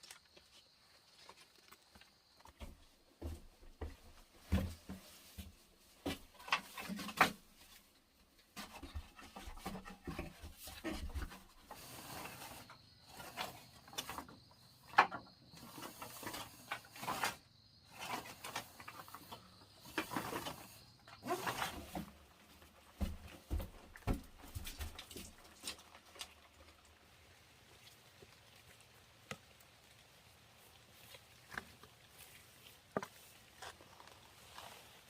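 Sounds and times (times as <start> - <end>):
wood scraping and rubbing: 2.6 - 25.8.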